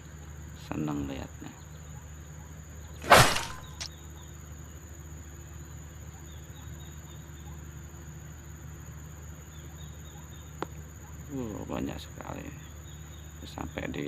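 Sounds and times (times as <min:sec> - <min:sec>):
insect drone: 0:00.0 - 0:14.0
small birds chirping: 0:00.6 - 0:04.4, 0:09.3 - 0:14.0
rushing thump on microphone: 0:03.0 - 0:03.9.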